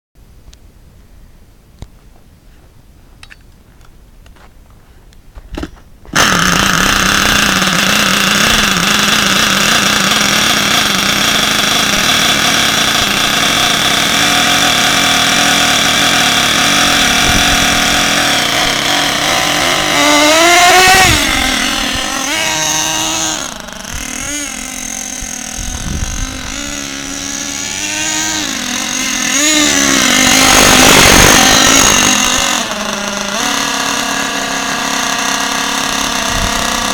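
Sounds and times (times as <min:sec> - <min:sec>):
small nitro engine revving: 0:05.6 - 0:36.9.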